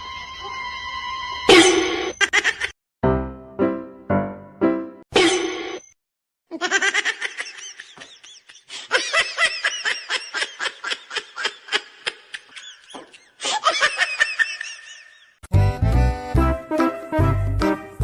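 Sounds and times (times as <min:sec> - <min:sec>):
high-pitched laughter: 0:02.2 - 0:02.7, 0:06.5 - 0:15.4.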